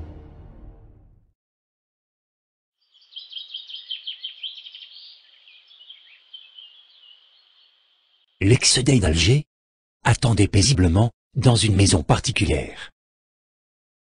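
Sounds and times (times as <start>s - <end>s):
small birds chirping: 2.8s - 8.4s.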